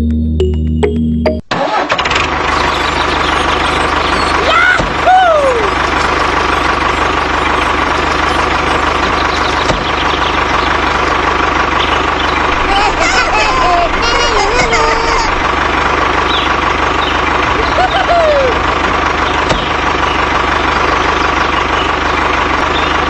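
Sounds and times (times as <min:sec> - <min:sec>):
rising-and-falling tones: 0:00.0 - 0:18.9
engine running steadily: 0:01.9 - 0:23.0.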